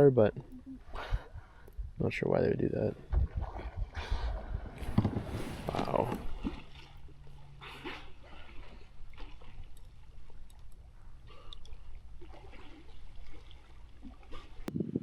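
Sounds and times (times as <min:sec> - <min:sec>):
low steady rumble: 0:00.0 - 0:12.2
water lapping and trickling: 0:00.0 - 0:14.8
small splashes and drips: 0:05.8 - 0:14.7.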